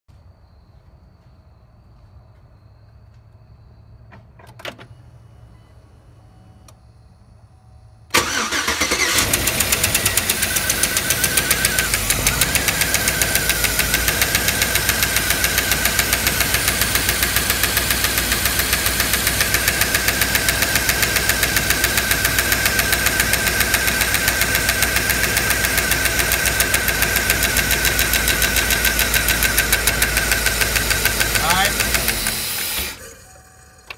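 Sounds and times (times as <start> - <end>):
car engine idling: 7.7 - 33.9
rapid valvetrain ticking: 26.1 - 32.4.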